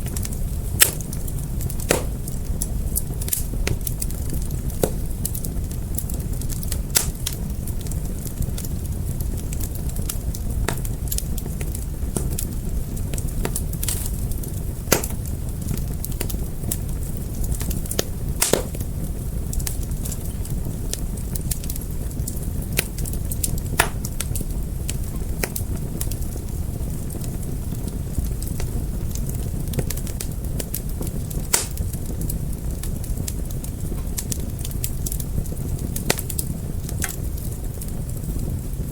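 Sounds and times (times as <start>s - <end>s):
fire pops and snaps: 0.0s - 38.9s
fire rumble: 0.0s - 38.9s.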